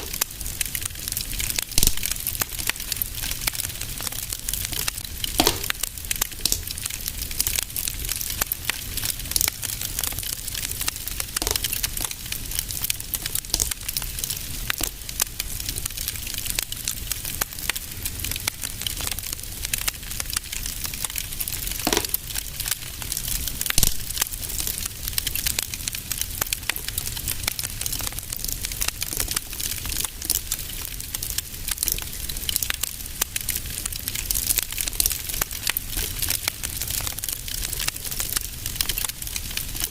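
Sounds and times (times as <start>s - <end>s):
fire pops: 0.0s - 39.9s
low fire rumble: 0.0s - 39.9s
wood fire crackling: 0.0s - 39.9s.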